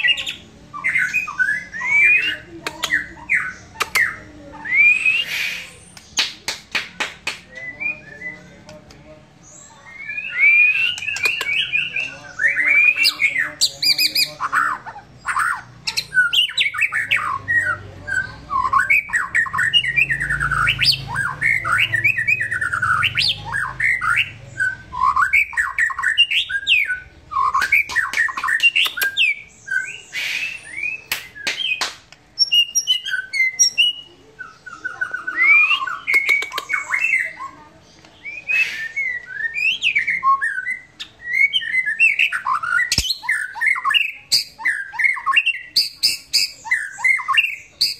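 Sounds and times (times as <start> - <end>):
bird singing whistled phrases: 0.0 - 6.3, 9.6 - 14.7, 15.3 - 31.8, 32.4 - 37.6, 38.2 - 47.9
sharp bird clicks: 2.6 - 4.2, 5.3 - 7.6, 10.6 - 11.9, 27.4 - 29.4, 35.7 - 37.2, 42.6 - 44.4.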